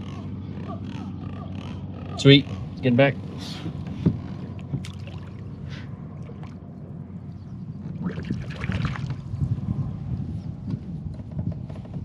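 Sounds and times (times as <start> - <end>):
water around kayak: 0.0 - 12.0
wind rumbling on microphone: 0.0 - 12.0
splashing and rustling: 7.9 - 9.4.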